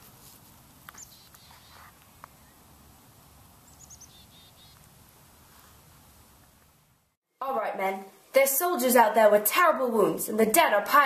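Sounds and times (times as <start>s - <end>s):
bird chirps: 0.9s - 2.6s, 3.6s - 4.9s.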